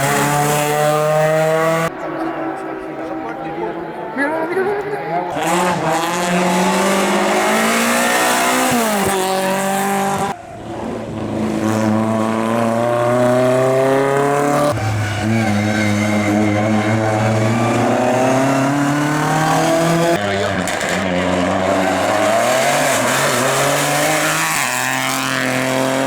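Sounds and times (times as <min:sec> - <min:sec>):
race car engine accelerating: 0:00.0 - 0:04.2, 0:05.3 - 0:26.0.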